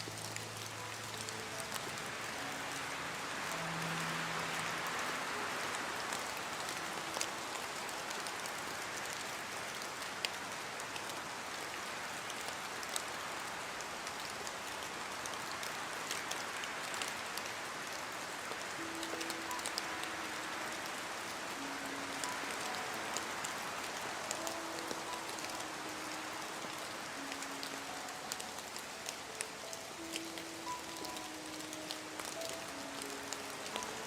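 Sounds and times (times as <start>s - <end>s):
heavy rain hiss: 0.0s - 34.0s
raindrops ticking: 0.0s - 34.0s.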